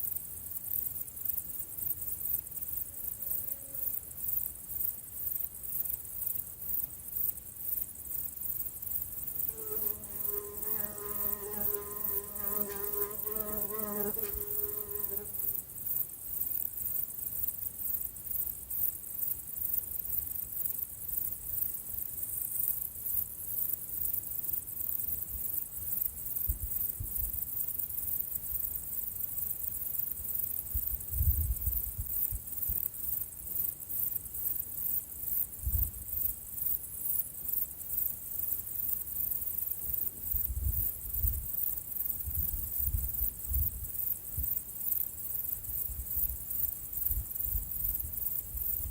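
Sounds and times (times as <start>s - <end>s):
insect chorus trilling: 0.0s - 48.9s
fly buzzing: 9.5s - 15.6s.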